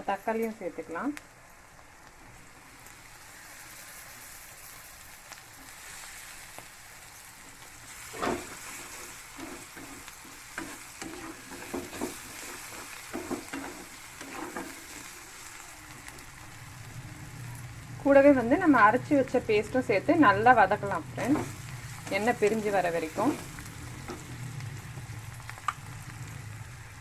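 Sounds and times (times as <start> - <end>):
masala sizzling in oil: 0.0 - 27.0
spoon scraping and clinking on pan: 7.9 - 15.1.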